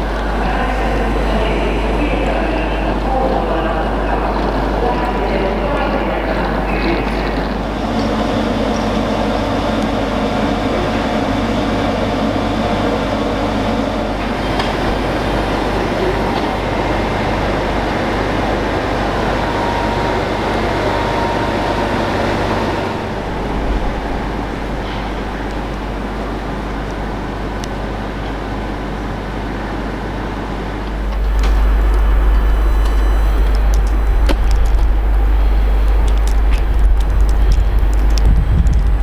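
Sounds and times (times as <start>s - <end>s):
standing trains humming: 0.0s - 39.0s
station noise: 0.0s - 39.0s.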